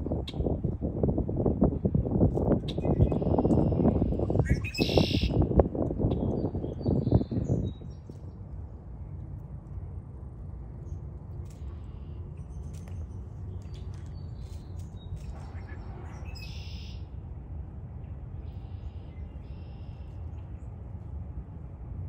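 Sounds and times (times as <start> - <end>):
low outdoor rumble: 0.0 - 22.0
small birds chirping: 11.6 - 17.0.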